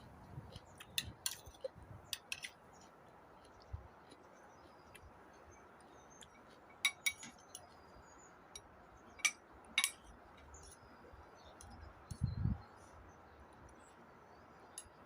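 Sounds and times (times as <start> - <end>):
utensils clinking against dishes: 9.2 - 10.0.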